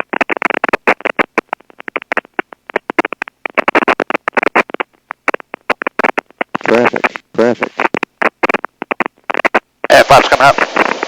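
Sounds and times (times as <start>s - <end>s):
radio static crackling: 0.0s - 11.0s.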